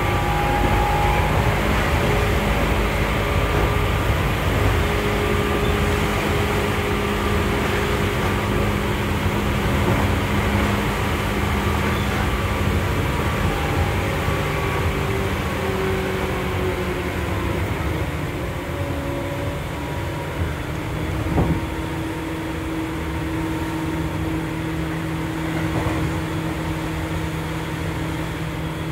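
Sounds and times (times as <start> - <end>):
train wheels rumbling: 0.0 - 28.9.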